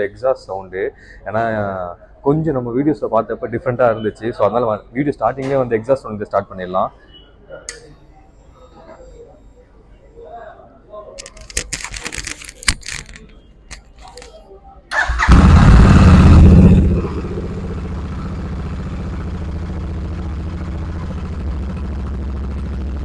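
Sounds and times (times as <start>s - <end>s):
motorcycle engine starting and idling: 14.9s - 23.0s.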